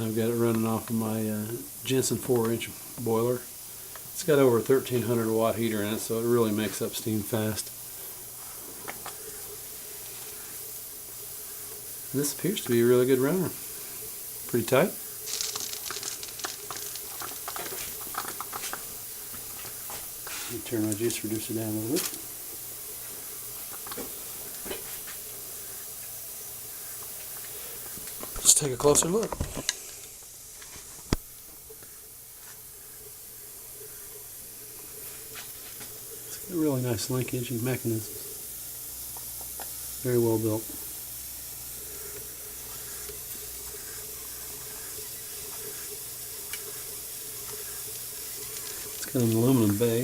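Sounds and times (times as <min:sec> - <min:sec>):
steam engine hissing: 0:00.0 - 0:50.0
faint ticks: 0:46.5 - 0:49.1.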